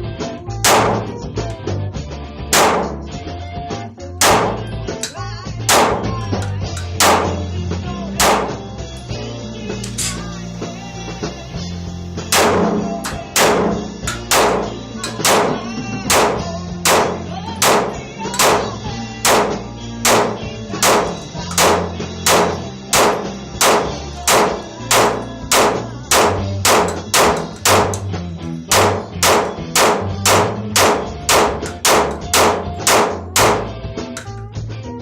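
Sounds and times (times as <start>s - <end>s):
background music with bass line: 0.0s - 35.0s
pistol shots: 0.6s - 1.2s, 2.5s - 3.0s, 4.2s - 4.8s, 5.7s - 6.2s, 6.8s - 7.5s, 8.2s - 8.7s, 12.2s - 28.1s, 28.7s - 33.8s.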